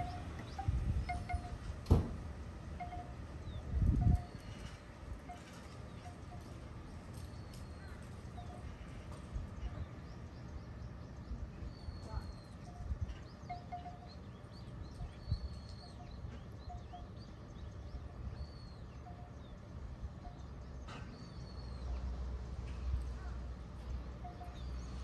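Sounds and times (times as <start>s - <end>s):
small birds chirping: 7.1s - 22.1s.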